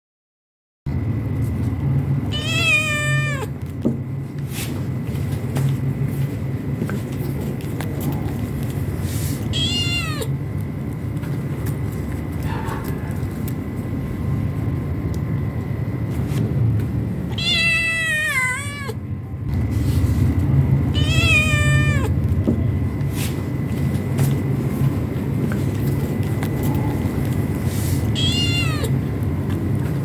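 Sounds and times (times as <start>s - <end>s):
steady low rumble: 0.9s - 30.0s
cat meowing: 2.3s - 3.6s, 9.4s - 10.4s, 17.3s - 19.0s, 20.9s - 22.2s, 28.1s - 29.0s.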